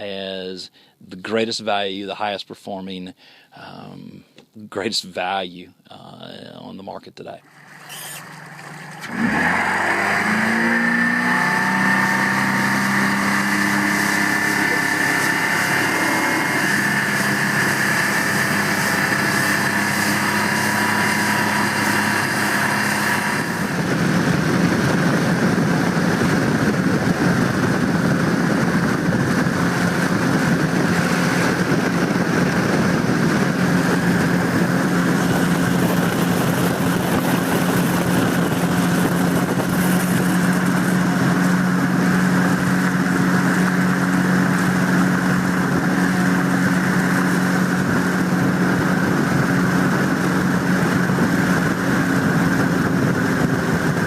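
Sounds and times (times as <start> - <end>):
outboard motor running: 7.4 - 54.0
water rushing: 7.5 - 23.9.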